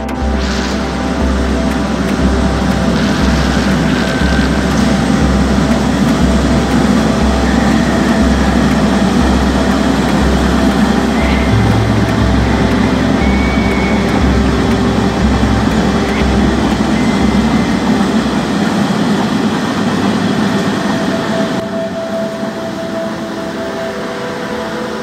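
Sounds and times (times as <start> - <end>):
freight train on a bridge: 0.0 - 25.0.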